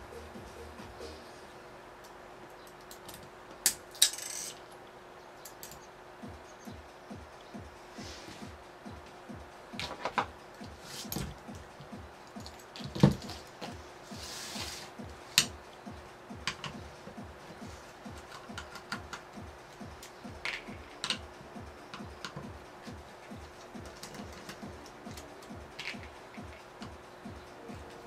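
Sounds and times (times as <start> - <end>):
background music with low beat: 0.0 - 2.2, 5.5 - 28.0
clicks and taps of tools: 5.4 - 5.9, 18.1 - 21.2.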